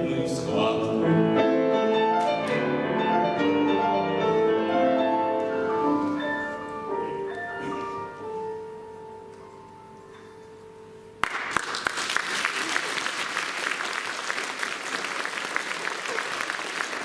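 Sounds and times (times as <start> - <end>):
audience applause: 11.2 - 17.0.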